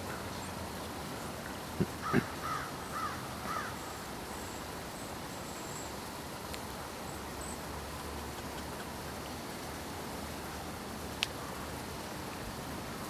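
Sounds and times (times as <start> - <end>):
outdoor background noise: 0.0 - 13.0
bird calling: 1.8 - 4.6.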